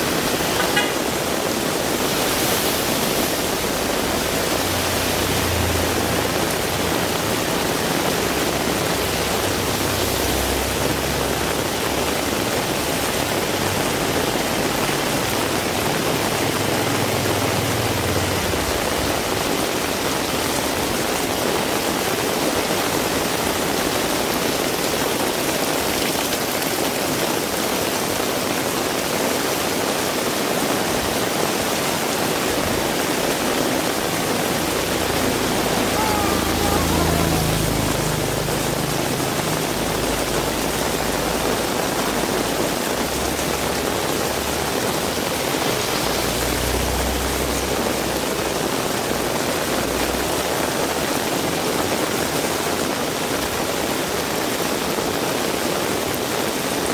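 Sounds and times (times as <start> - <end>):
heavy rain hissing: 0.0 - 56.9.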